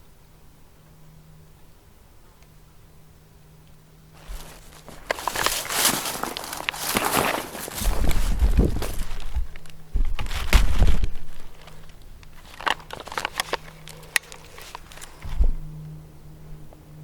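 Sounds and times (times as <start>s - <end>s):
faint crackles and clicks: 3.6s - 15.5s
rustling in dry leaves: 4.2s - 15.4s.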